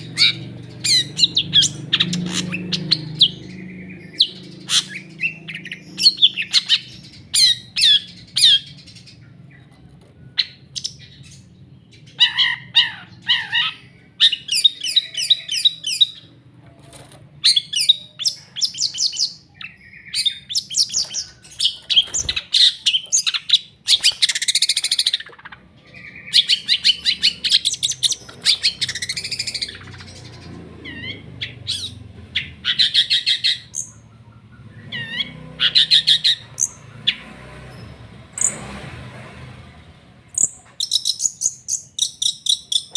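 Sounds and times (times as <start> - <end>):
bird rasping call: 0.0 - 8.8
bird chattering high chirps: 0.0 - 9.7, 10.3 - 16.3, 17.4 - 37.2, 40.4 - 42.9.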